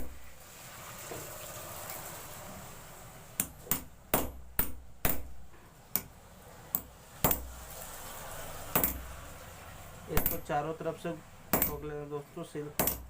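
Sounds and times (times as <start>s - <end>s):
metal tool taps: 10.2s - 10.5s.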